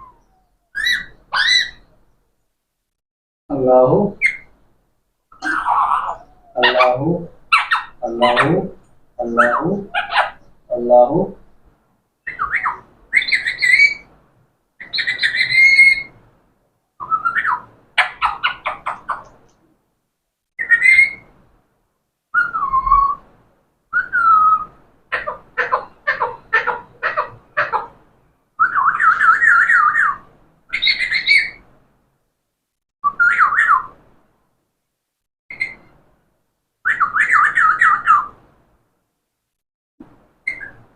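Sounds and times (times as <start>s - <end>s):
parrot calling and whistling: 0.0s - 1.9s, 4.2s - 4.5s, 5.4s - 8.6s, 9.2s - 10.6s, 12.2s - 14.1s, 14.8s - 16.2s, 17.0s - 19.3s, 20.6s - 21.3s, 22.3s - 23.2s, 23.9s - 27.9s, 28.6s - 31.6s, 33.0s - 34.0s, 35.5s - 35.9s, 36.8s - 38.4s, 40.4s - 40.9s.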